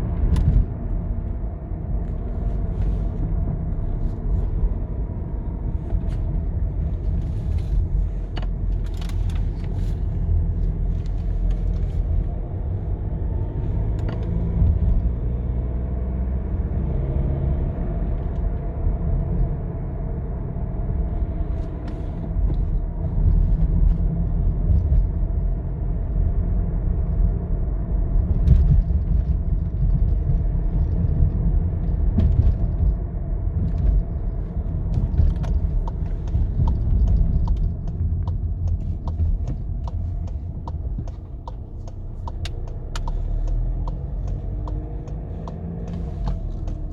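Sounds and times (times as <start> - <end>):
diesel engine running: 34.0 - 46.9.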